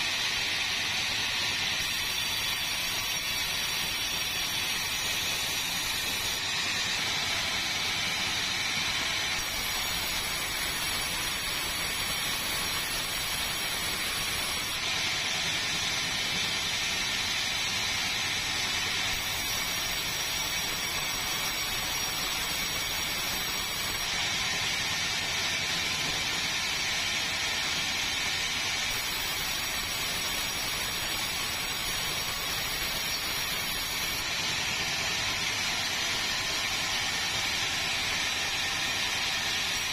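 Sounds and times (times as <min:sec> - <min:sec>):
sawmill machinery hissing: 0:00.0 - 0:39.9.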